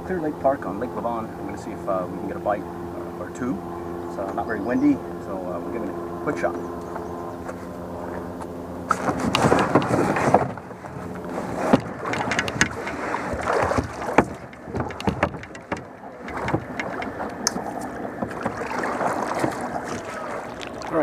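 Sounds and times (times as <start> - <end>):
paddle splashing in water: 8.9 - 21.0
sharp knocks: 11.6 - 18.7.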